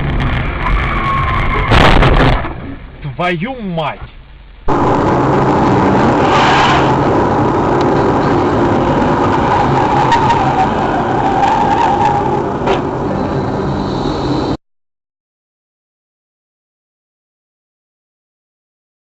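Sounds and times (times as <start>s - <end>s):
tyre and road noise: 0.0s - 14.6s
car engine running: 4.1s - 14.6s.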